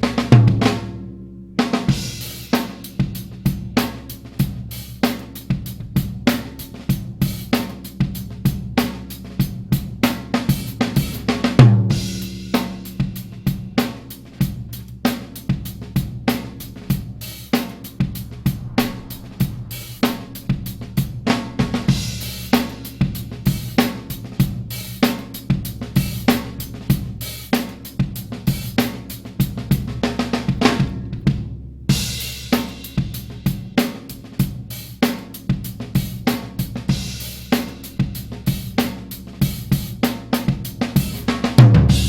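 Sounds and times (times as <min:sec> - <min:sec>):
drum kit beat: 0:20.3 - 0:30.7.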